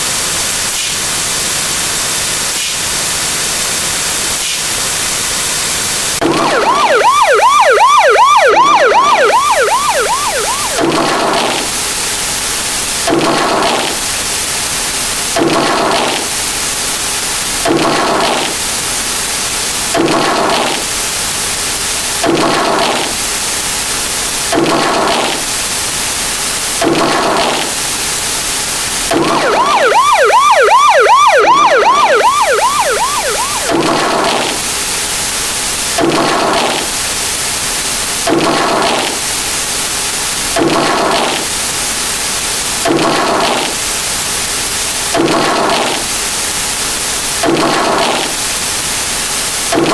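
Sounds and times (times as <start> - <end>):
dense layered sirens: 5.9 - 48.8
fast warbling siren wail: 6.2 - 11.7, 29.1 - 34.7.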